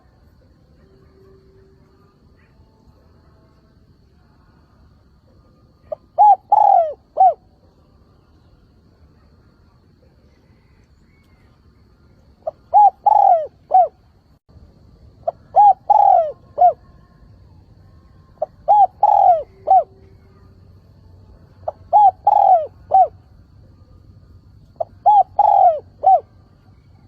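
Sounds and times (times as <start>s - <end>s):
dove cooing: 5.8s - 7.6s, 12.4s - 14.0s, 15.2s - 17.0s, 18.4s - 20.4s, 21.6s - 23.3s, 24.7s - 27.0s.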